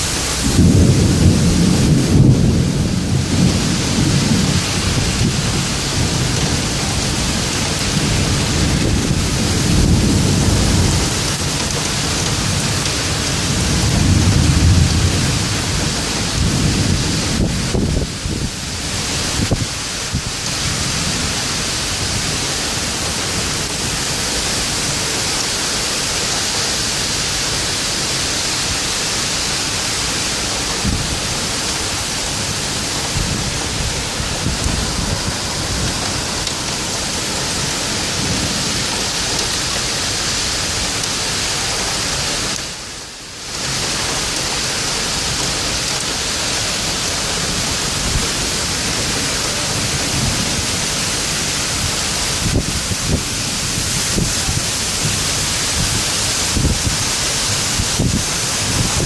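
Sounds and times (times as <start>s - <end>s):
torrential rain pouring: 0.0s - 59.0s
wind buffeting microphone: 0.2s - 24.1s, 30.5s - 40.5s, 47.4s - 59.0s.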